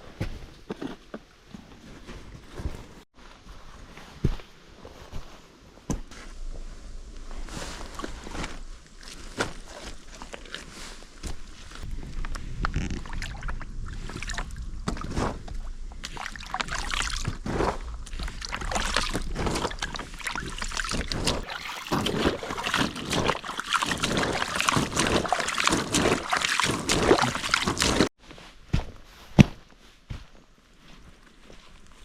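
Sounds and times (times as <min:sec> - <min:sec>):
water splashing and sloshing: 0:06.5 - 0:28.1.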